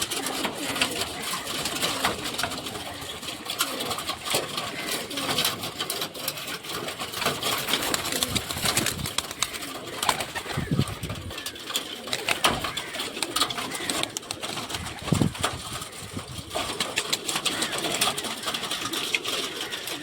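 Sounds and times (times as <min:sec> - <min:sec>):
pigeons cooing: 0:00.0 - 0:20.0
sharp clicks: 0:12.1 - 0:14.8.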